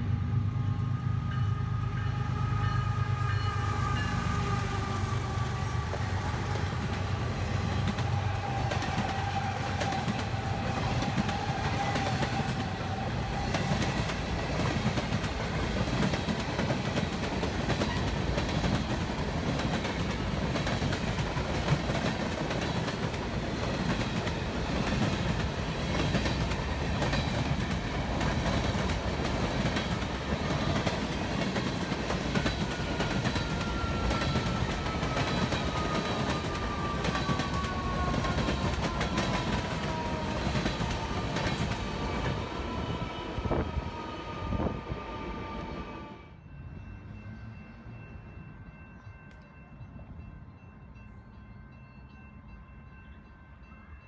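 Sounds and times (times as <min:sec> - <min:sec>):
train wheels rumbling on rails: 0:00.0 - 0:46.2
clickety-clack over rail joints: 0:05.8 - 0:42.6.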